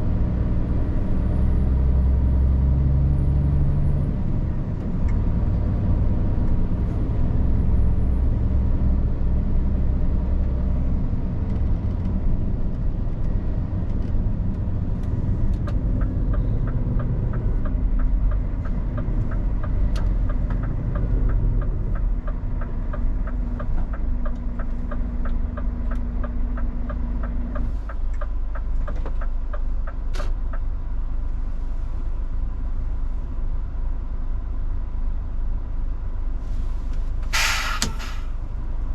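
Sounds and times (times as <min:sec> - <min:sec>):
truck engine running: 0:00.0 - 0:38.9
regular ticking clicks: 0:13.9 - 0:30.8.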